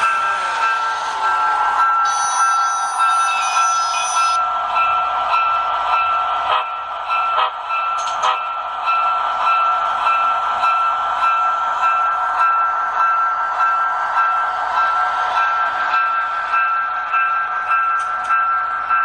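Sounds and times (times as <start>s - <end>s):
locomotive bell ringing: 0.0s - 6.2s
high tone: 2.1s - 4.4s.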